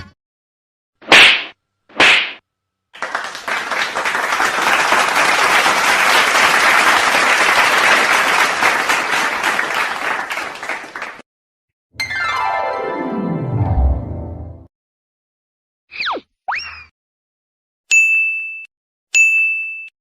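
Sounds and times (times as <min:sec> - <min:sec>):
crowd applauding: 0:03.0 - 0:11.2.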